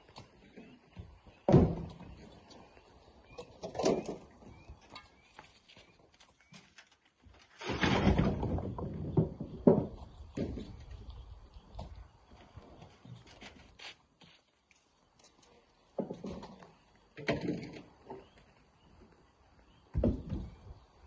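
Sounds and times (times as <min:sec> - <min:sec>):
rocks knocking and clattering: 0:03.6 - 0:11.2.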